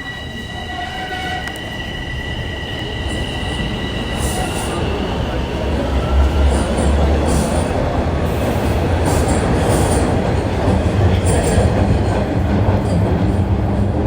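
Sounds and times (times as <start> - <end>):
faint high squeals: 0.0 - 6.8
subway train wheels rumbling: 0.0 - 14.0.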